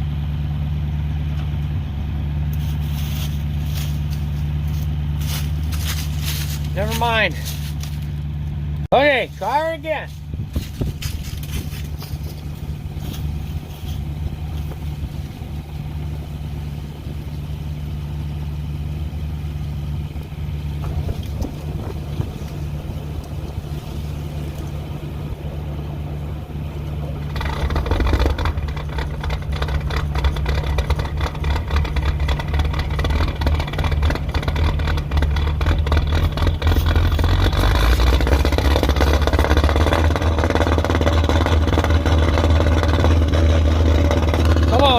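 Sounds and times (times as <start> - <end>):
combine engine starting rough: 0.0 - 44.9
engine running: 0.0 - 44.9.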